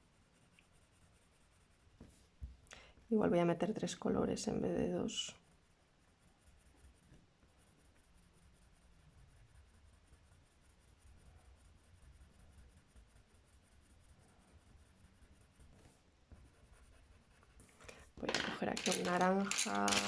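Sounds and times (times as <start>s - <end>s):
colouring scratching on paper: 0.0s - 2.3s, 3.6s - 20.0s.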